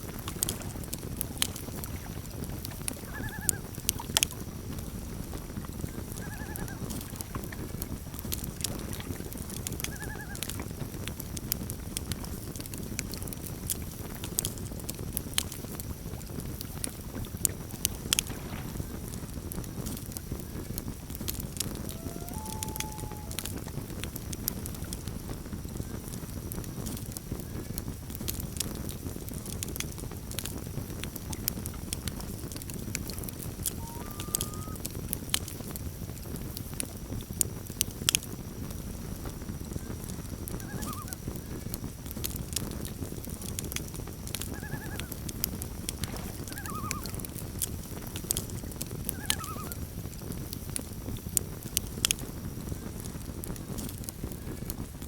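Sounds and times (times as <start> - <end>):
campfire crackling and popping: 0.0 - 55.0
faint loon calls: 2.8 - 4.1, 5.9 - 7.2, 9.8 - 10.6, 21.7 - 23.8, 33.6 - 34.9, 40.5 - 41.2, 44.4 - 45.3, 46.0 - 47.4, 49.0 - 49.9.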